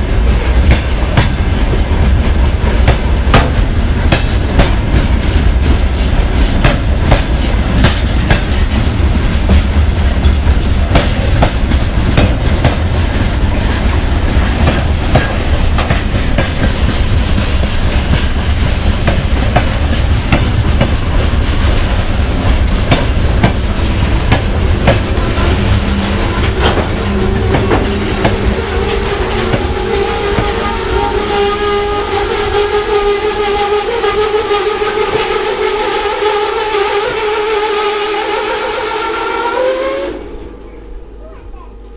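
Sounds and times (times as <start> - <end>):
freight train rumbling past: 0.0 - 41.9
wheels clicking over rail joints: 0.2 - 31.2.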